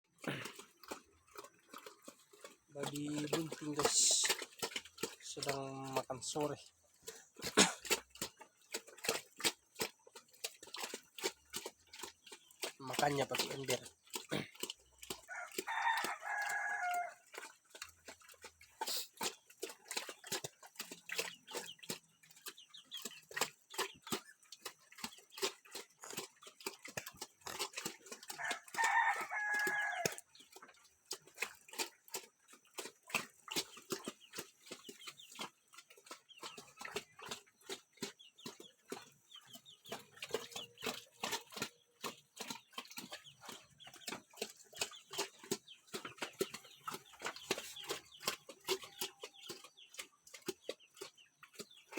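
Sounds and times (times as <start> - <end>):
pig eating with wet smacks: 0.0 - 51.9
rooster crowing: 15.3 - 17.2, 28.4 - 30.2.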